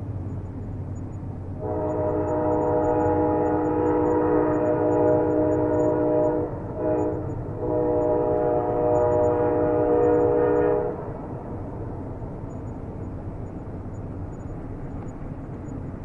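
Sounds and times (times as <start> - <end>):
steady low rumble: 0.0 - 2.0
train horn chord blasts: 1.6 - 11.1.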